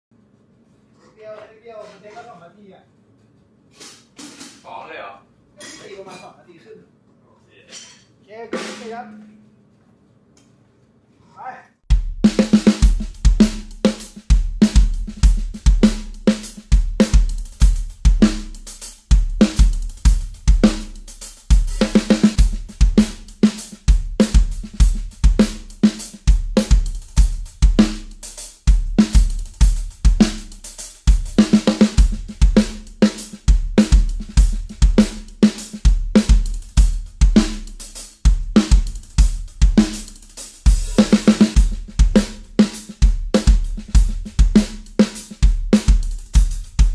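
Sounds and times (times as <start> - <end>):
hi-hat: 3.7 - 4.6, 11.9 - 46.9
snare drum hits: 3.8 - 4.7, 28.9 - 46.9
kick drum beats: 11.9 - 46.9.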